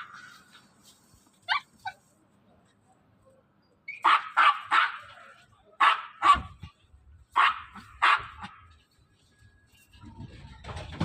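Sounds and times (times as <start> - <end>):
dog barking: 4.0 - 5.2, 5.8 - 6.6, 7.3 - 8.6.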